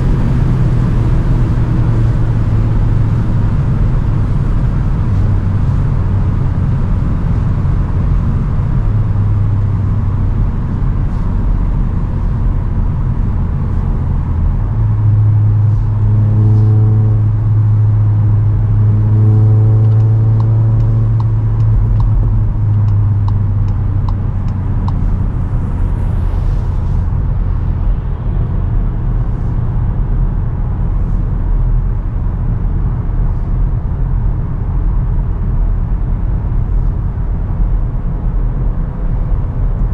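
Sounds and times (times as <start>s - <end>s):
car engine droning: 0.0s - 39.9s
road and wind noise: 0.0s - 39.9s
light ticks: 19.8s - 25.1s.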